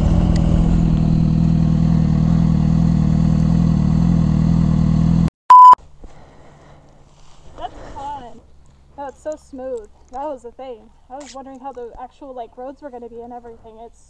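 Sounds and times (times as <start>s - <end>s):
motorcycle engine cruising: 0.0s - 5.3s
loud beep tone: 5.5s - 5.8s.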